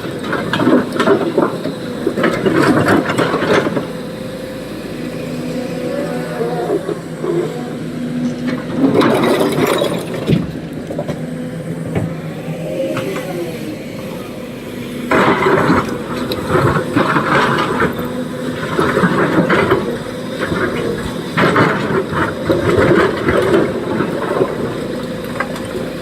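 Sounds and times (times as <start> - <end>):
excavator diesel engine running: 0.0 - 26.0
harsh scraping and clattering: 6.7 - 12.3.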